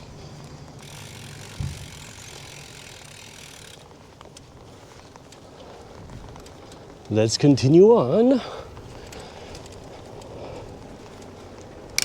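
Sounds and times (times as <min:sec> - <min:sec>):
bicycle freewheel buzzing: 0:00.7 - 0:03.9
low thump: 0:01.6 - 0:02.0.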